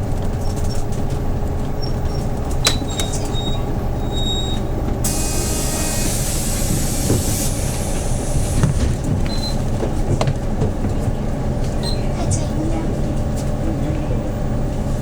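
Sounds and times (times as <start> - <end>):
bus engine running: 0.0 - 15.0
compressed air hiss: 5.0 - 8.6.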